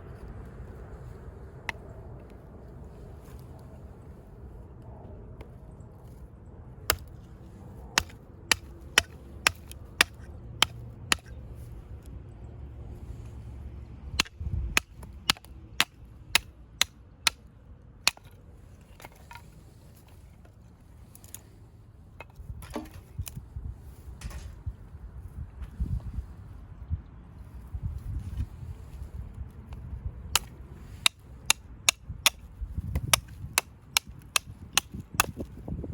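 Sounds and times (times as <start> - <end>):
axe chopping firewood: 6.9 - 7.1, 8.0 - 11.4, 14.1 - 17.4, 18.0 - 18.4, 30.3 - 35.6.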